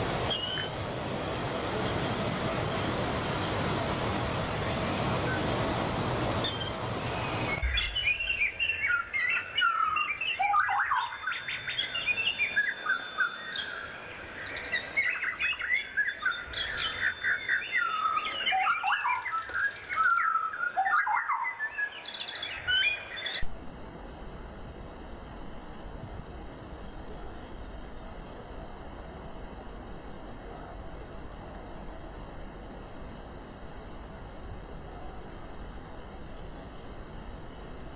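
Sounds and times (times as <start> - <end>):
steady rushing noise: 0.0 - 8.8
faint steady hiss: 0.0 - 10.5, 21.9 - 37.9
songbirds chirping and singing: 6.4 - 23.4.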